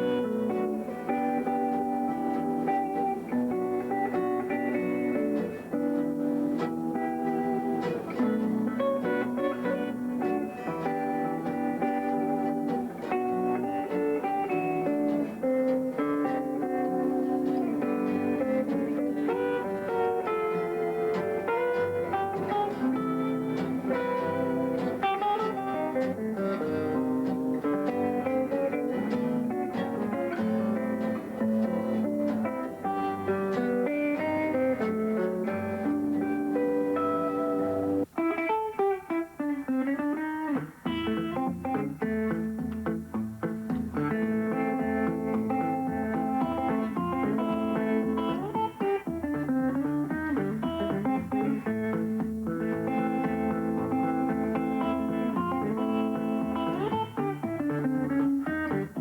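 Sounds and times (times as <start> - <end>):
guitar picked notes: 0.0 - 59.0.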